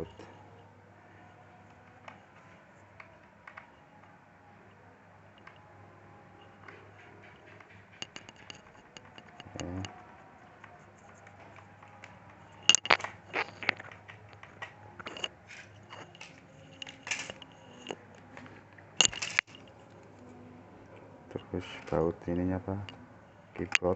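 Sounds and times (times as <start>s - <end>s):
screws clicking on plastic case: 6.6s - 10.0s, 11.2s - 18.0s.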